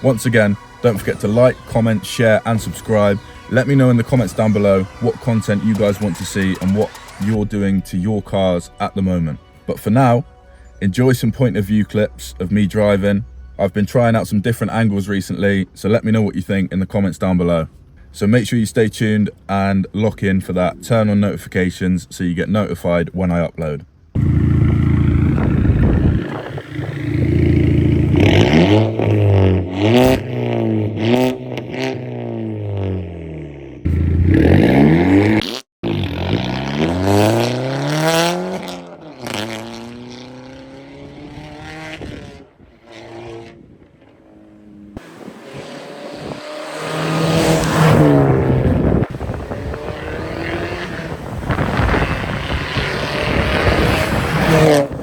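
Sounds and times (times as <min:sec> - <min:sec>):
loud car exhaust accelerating: 0:00.0 - 0:09.4, 0:24.2 - 0:55.0.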